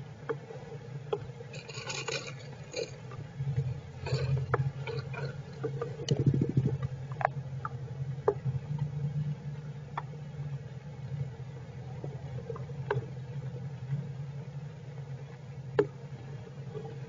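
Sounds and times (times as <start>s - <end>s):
steady low hum: 0.0s - 17.0s
small taps and ticks: 0.2s - 1.8s, 4.4s - 8.9s, 9.9s - 10.1s, 12.0s - 13.1s, 15.7s - 17.0s
rapid scratching: 3.7s - 6.9s.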